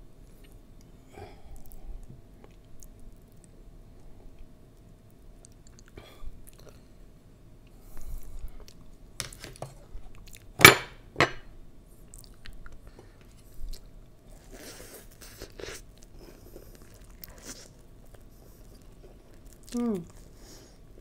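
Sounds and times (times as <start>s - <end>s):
chewing with mouth clicks: 4.3s - 6.8s, 12.0s - 21.0s.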